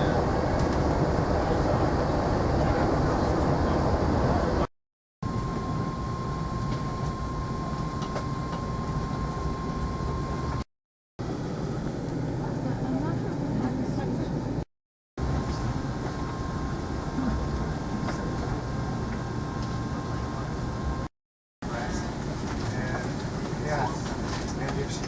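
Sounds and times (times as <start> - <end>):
train rumble: 0.0 - 4.7, 21.6 - 25.0
high whine: 0.0 - 10.6.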